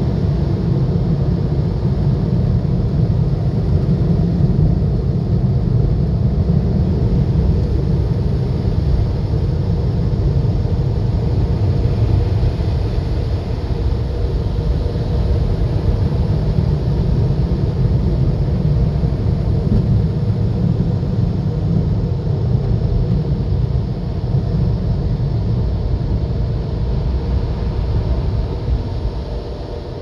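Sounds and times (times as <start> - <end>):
car wash machinery rumble: 0.0 - 30.0.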